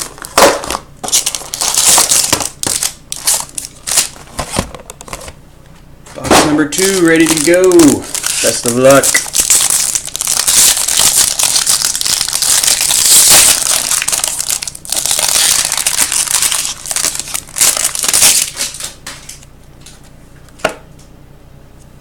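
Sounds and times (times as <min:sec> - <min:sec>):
plastic wrapping crinkling: 0:00.0 - 0:05.2, 0:06.4 - 0:20.0.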